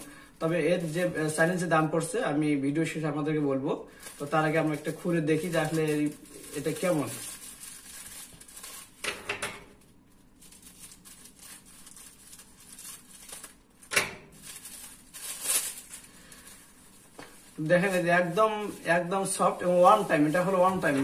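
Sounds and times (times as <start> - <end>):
plastic raincoat crinkling: 4.0 - 9.1, 10.1 - 21.0.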